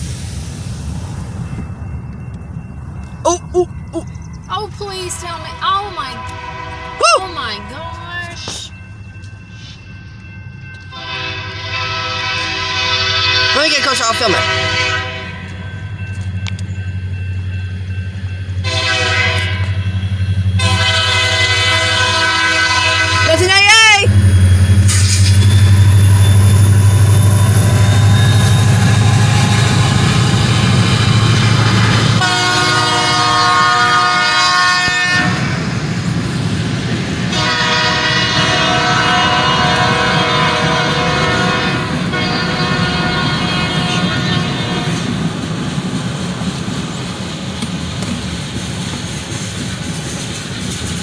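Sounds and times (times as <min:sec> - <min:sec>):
freight cars rolling by: 0:00.0 - 0:51.0
locomotive engine rumble: 0:00.0 - 0:51.0
distant train horn: 0:05.0 - 0:08.5, 0:10.9 - 0:15.6, 0:18.6 - 0:19.9, 0:20.6 - 0:24.2, 0:32.2 - 0:35.6, 0:37.3 - 0:45.2.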